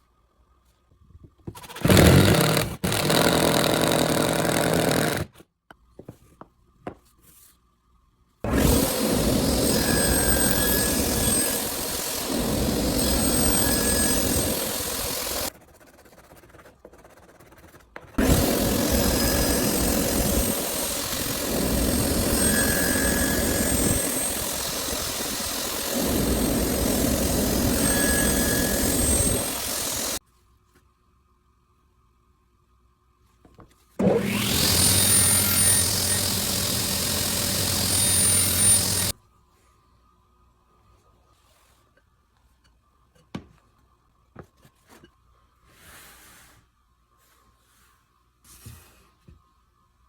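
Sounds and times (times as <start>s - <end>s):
power tool cutting wood: 8.5s - 15.5s, 18.2s - 30.2s, 34.0s - 39.2s.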